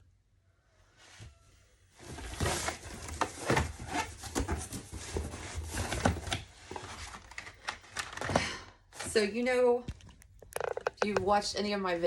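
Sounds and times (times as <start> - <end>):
cardboard box rustling and scraping: 2.0 - 7.3.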